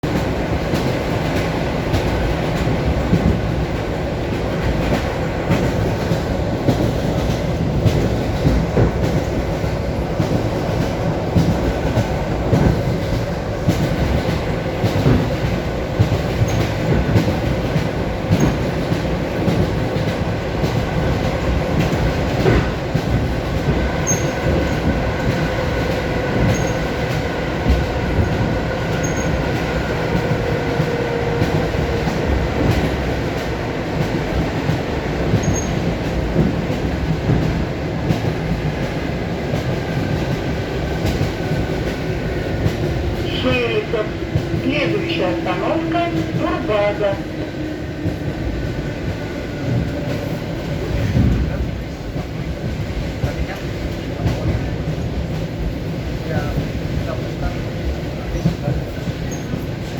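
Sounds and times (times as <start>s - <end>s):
train wheels clacking over joints: 0.1s - 43.2s.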